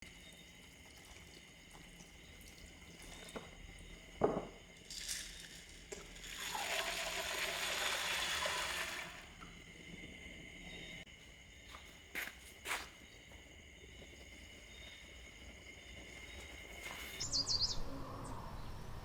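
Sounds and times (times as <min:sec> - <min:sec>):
water pouring: 0:00.0 - 0:09.5.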